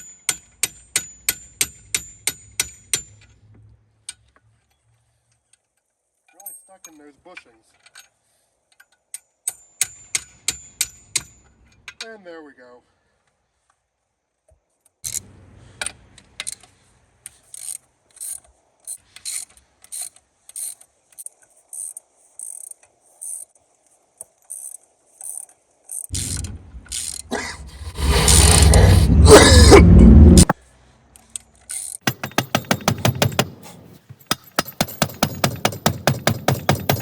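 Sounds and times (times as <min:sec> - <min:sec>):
ratchet wrench clicking: 0:17.3 - 0:23.5, 0:31.2 - 0:33.6
loud continuous mechanical noise: 0:26.1 - 0:30.5.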